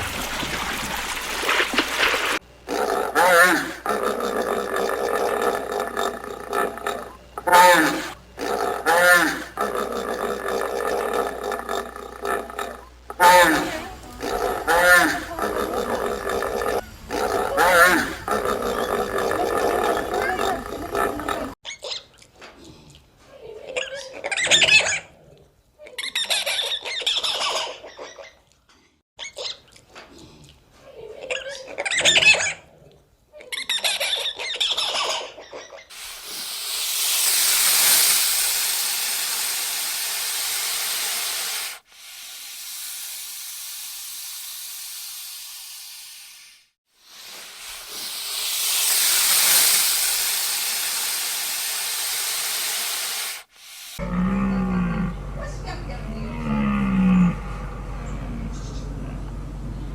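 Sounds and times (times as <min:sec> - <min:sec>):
loud hissing noise: 0:02.6 - 0:21.6, 0:35.9 - 0:54.0
high squealing animal calls: 0:02.7 - 0:21.6.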